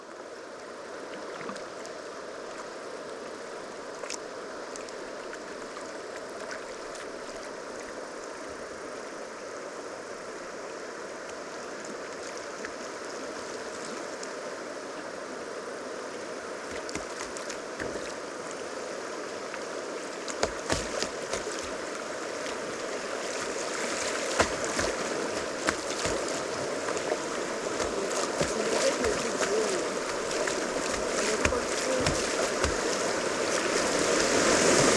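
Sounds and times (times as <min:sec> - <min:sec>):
river water rushing: 0:00.0 - 0:34.9
knocks and splashes: 0:16.7 - 0:18.2, 0:20.3 - 0:22.6, 0:23.2 - 0:34.9.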